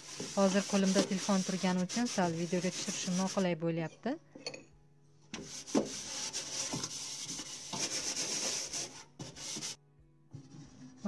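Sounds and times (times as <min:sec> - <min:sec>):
sponge scrubbing microwave walls: 0:00.0 - 0:03.5, 0:05.4 - 0:09.8.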